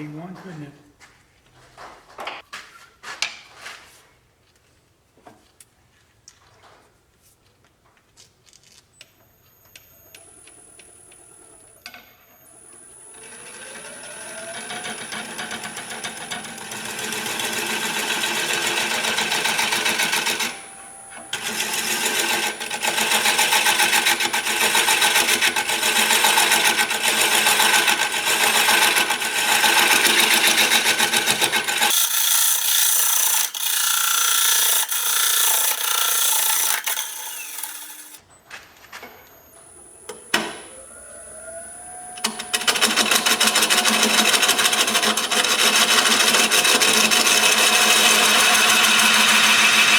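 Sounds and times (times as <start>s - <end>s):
wood lathe whine: 9.6s - 38.2s, 38.9s - 49.9s
tool cutting spinning wood: 10.1s - 38.2s, 39.4s - 49.9s.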